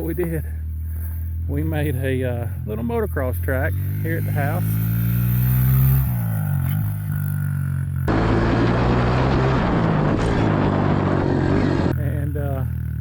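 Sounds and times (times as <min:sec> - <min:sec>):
dirt bike engine: 0:00.0 - 0:13.0
rush of noise: 0:08.1 - 0:12.0.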